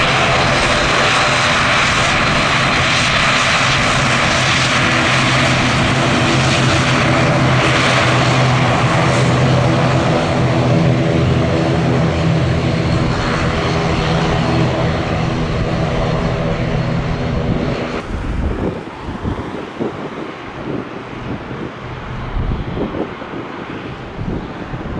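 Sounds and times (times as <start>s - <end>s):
propeller drone: 0.0s - 24.9s
aircraft engine hiss: 13.0s - 24.7s.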